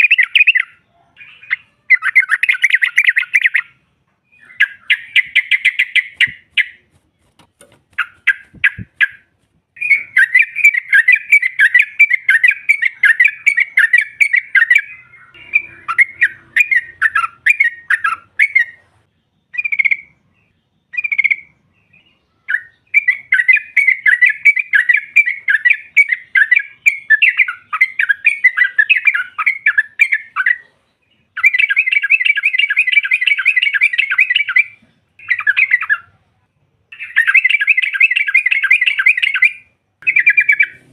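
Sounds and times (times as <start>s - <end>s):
bulbul chattering call: 8.0s - 18.8s, 37.0s - 40.9s.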